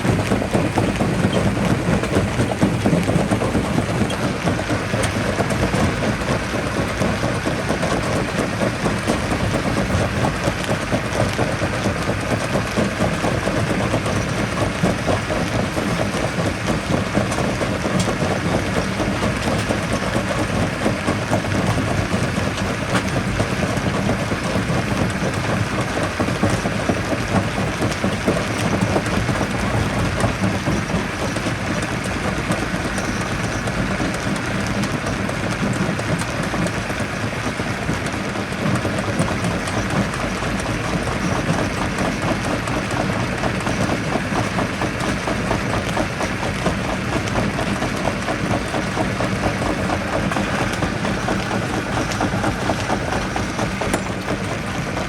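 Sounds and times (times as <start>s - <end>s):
jaw crusher rumbling: 38.1s - 55.0s.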